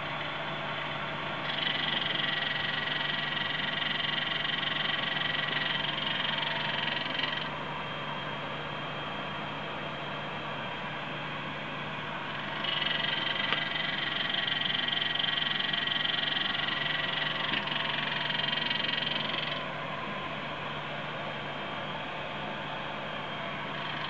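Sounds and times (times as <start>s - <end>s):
cooling fan whirring: 0.0s - 24.0s
high-pitched buzzing clatter: 1.4s - 7.5s, 12.4s - 19.6s, 23.7s - 24.0s.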